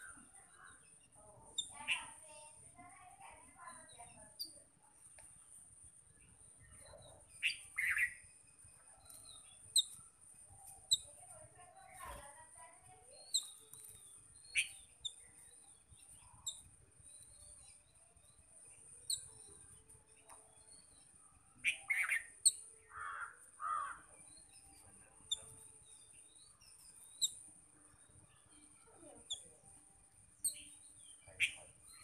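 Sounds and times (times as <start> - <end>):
birds chirping: 0.0 - 32.0
birds squawking harshly: 22.9 - 24.0.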